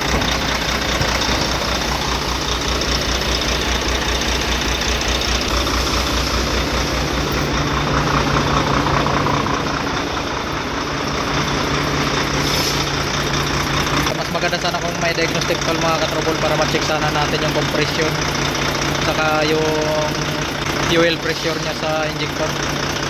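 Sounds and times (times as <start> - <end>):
truck diesel engine idling: 0.0 - 23.0.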